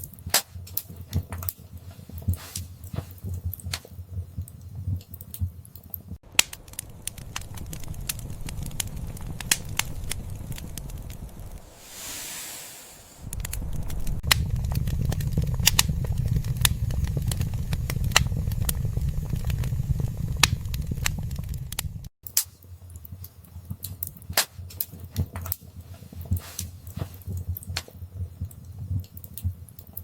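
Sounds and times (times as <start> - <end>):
low rumble of flames: 0.0 - 30.0
wood fire crackling and popping: 0.0 - 30.0
soft hiss: 2.3 - 3.2, 11.3 - 14.3, 26.0 - 27.2.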